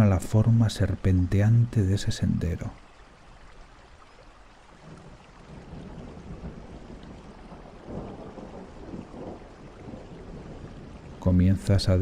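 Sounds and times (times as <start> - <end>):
steady rain: 0.0 - 12.0
rolling thunder: 4.9 - 12.0.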